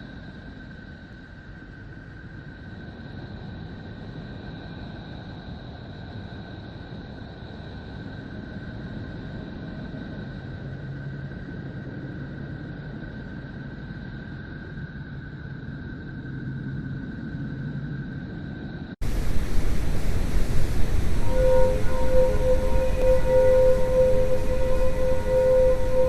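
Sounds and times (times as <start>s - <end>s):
rumbling drone with hiss: 0.0s - 26.0s
high held tones: 19.0s - 26.0s
low hum: 19.0s - 26.0s.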